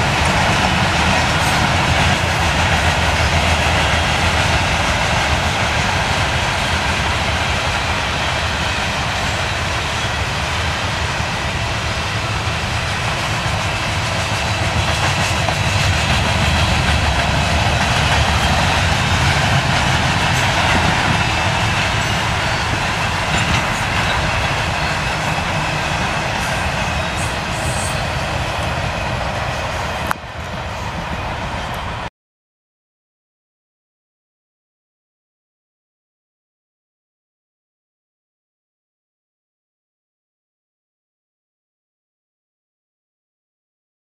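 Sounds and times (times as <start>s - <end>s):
freight train wheels rumbling: 0.0s - 32.1s
wheels clickety-clack: 12.4s - 31.9s.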